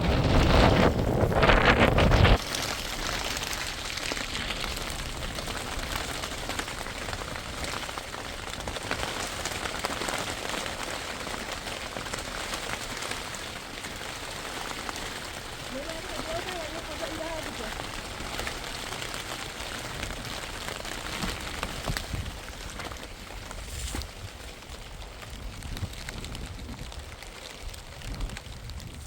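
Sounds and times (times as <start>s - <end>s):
wind gust on microphone: 0.0s - 8.8s
rain falling: 0.0s - 29.0s.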